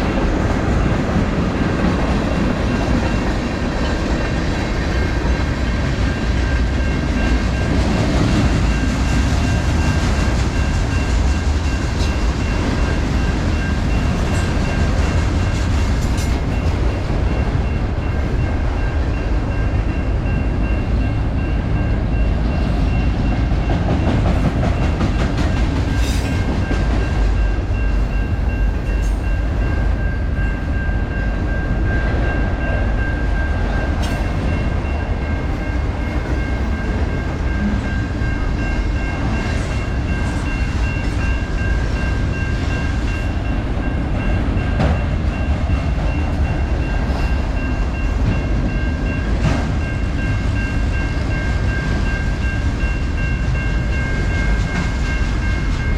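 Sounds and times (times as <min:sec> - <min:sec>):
wheels clickety-clack: 0:00.0 - 0:17.6, 0:22.6 - 0:29.2, 0:44.1 - 0:52.4, 0:53.4 - 0:55.9
freight train rumbling past: 0:00.0 - 0:55.9.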